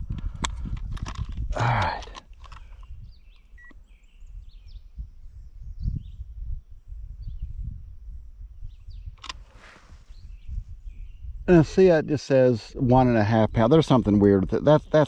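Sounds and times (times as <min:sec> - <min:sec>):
low wind rumble: 0:00.0 - 0:15.0
faint birds chirping: 0:01.5 - 0:15.0.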